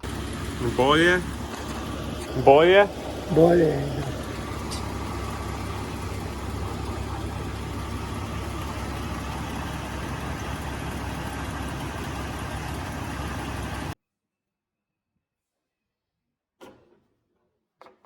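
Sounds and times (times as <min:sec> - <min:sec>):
car engine running steadily: 0:00.0 - 0:14.0.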